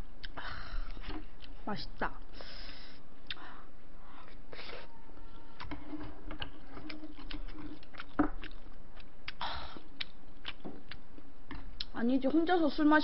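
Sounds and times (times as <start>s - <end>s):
person chewing food: 0.2s - 1.6s, 3.2s - 12.0s
short breath: 2.3s - 4.9s.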